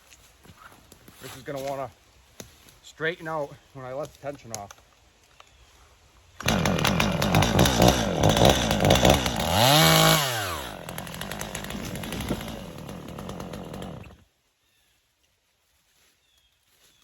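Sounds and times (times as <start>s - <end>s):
chainsaw cutting: 6.4s - 14.2s.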